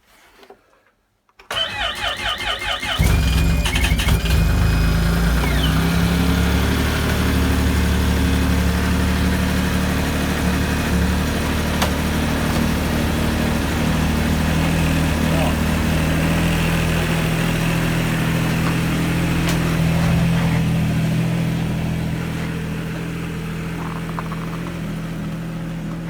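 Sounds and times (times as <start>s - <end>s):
starter motor cranking: 1.5s - 20.8s
snowmobile engine idling: 2.9s - 26.0s.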